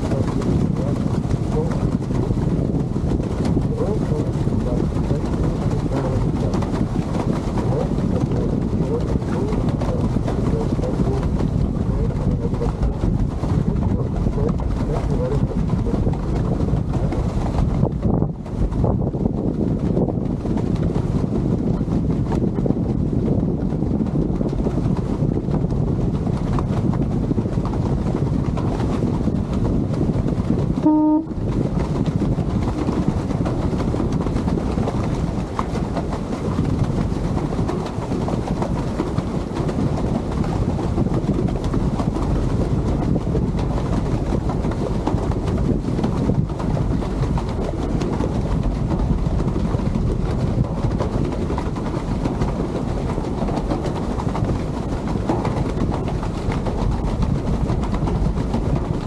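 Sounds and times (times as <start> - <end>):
ship engine and water rumble: 0.0 - 59.0
wind: 0.0 - 59.0
ship horn toot: 30.8 - 31.4.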